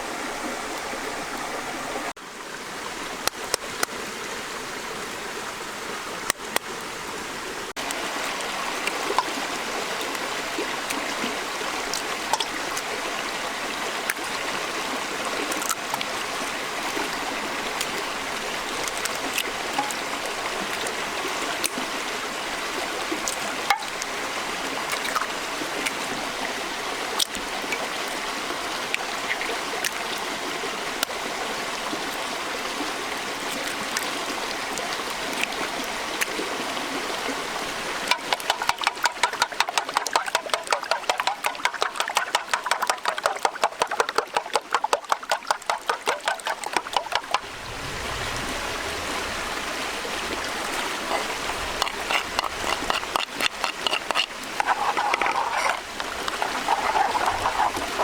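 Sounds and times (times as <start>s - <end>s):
running stream water: 0.0s - 58.0s
fast sharp knocks: 38.1s - 47.4s.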